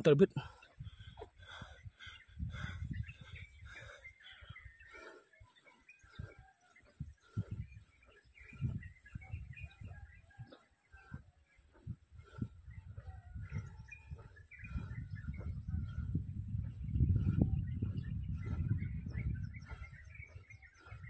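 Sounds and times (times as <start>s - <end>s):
small birds chirping: 0.0s - 21.0s
low rumbling on microphone: 0.8s - 4.0s, 11.8s - 21.0s.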